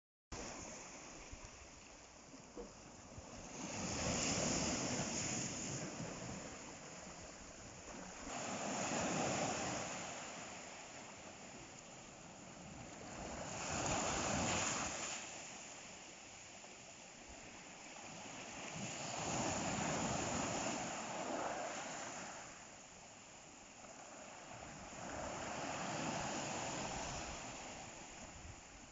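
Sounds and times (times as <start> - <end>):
ocean waves breaking: 3.1 - 11.5, 23.9 - 28.9.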